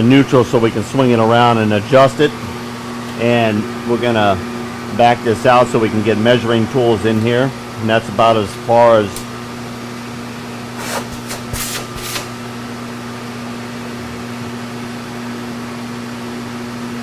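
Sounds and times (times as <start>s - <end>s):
electric motor hum: 0.0s - 12.9s.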